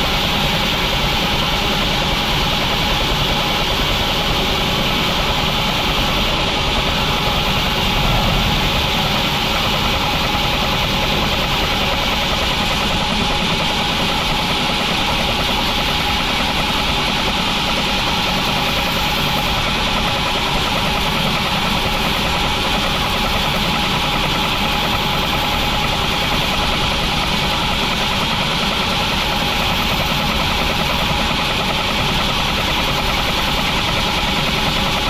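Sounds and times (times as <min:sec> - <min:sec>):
sawmill machinery droning: 0:06.3 - 0:11.8.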